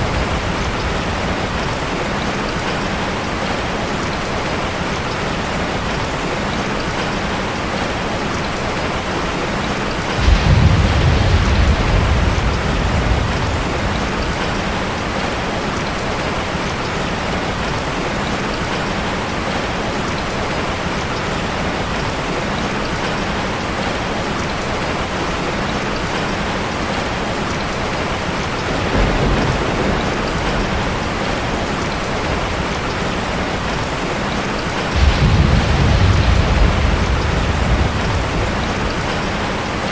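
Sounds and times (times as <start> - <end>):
thunder rumbling: 0.0 - 3.4, 9.6 - 17.4, 27.8 - 39.9
heavy rain falling: 0.0 - 39.9.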